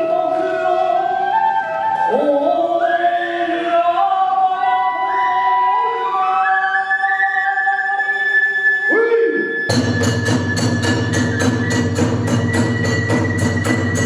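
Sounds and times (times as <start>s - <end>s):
person singing: 0.0s - 9.6s
bamboo flute melody: 0.0s - 14.0s.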